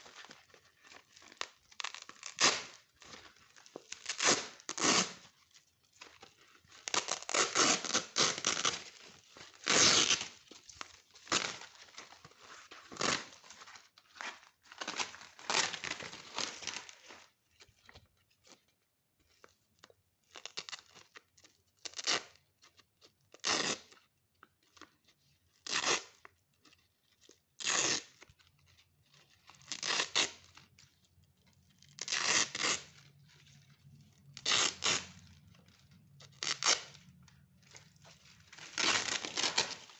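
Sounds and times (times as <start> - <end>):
velcro strips ripping apart: 0.2 - 5.4, 6.8 - 12.2, 12.8 - 13.6, 20.3 - 21.2, 21.8 - 22.4, 23.3 - 24.0, 25.6 - 26.3, 27.6 - 28.2, 29.5 - 30.6, 31.7 - 33.2, 34.3 - 39.9.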